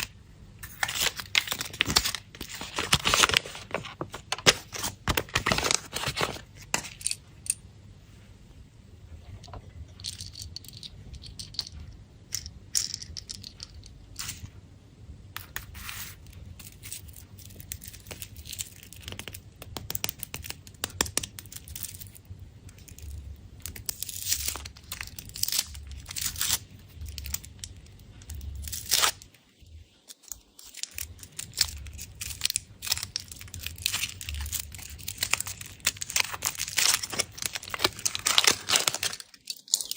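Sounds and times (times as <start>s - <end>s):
candy wrappers crinkling and tearing: 0.0s - 7.0s, 15.5s - 39.9s.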